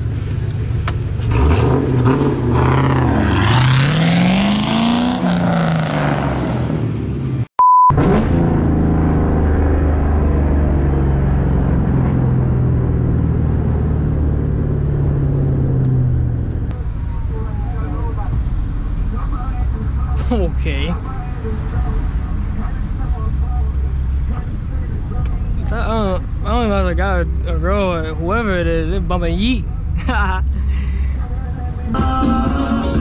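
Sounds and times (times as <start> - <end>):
car engine revving: 0.0 - 33.0
short steady beep: 7.6 - 8.0.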